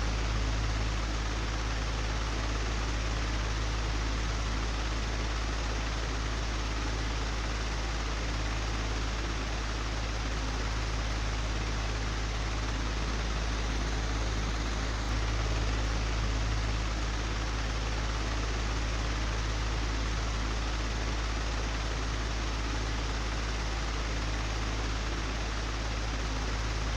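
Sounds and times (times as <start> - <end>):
electric fan running: 0.0 - 26.9
deep low hum: 11.1 - 18.2.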